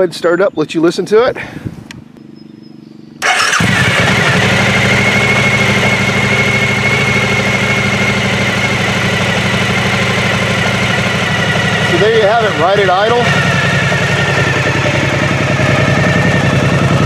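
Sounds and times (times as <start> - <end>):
electric starter cranking: 3.2 - 5.9
motorcycle engine idling: 3.2 - 17.0.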